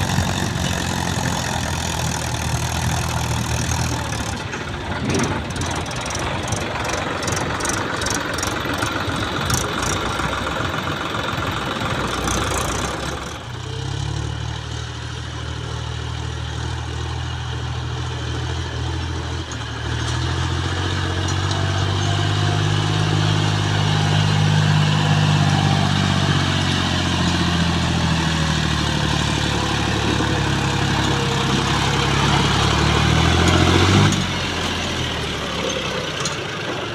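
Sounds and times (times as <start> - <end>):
tractor diesel engine running: 0.0 - 36.9
rapid clicking: 5.1 - 10.0.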